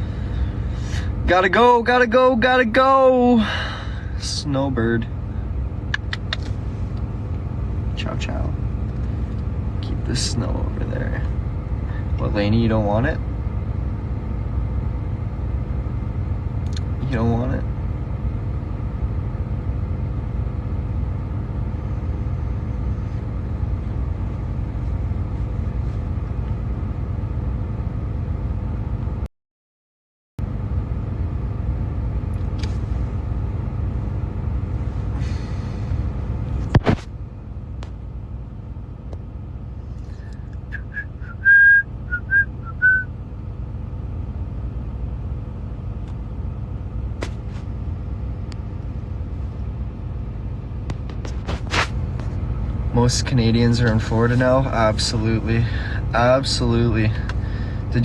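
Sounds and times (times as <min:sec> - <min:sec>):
truck engine idling: 0:00.0 - 0:29.0, 0:30.5 - 0:58.0
sharp click: 0:05.9 - 0:06.5.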